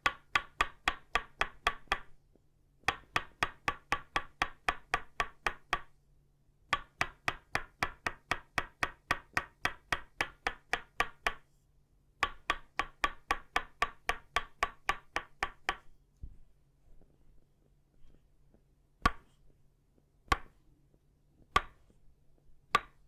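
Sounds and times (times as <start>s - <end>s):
wooden mallet knocking wood: 22.7s - 23.0s.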